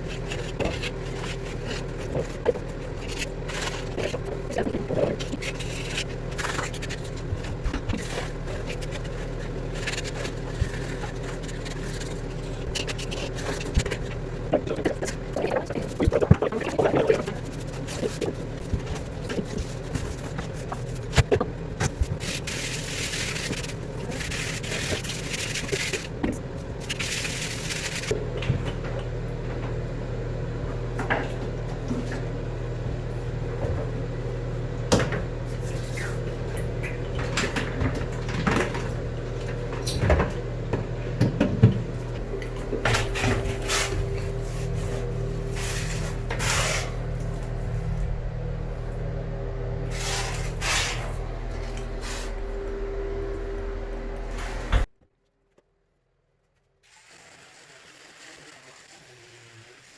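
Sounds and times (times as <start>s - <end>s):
steady low hum: 0.0s - 54.9s
hiss: 56.9s - 59.9s.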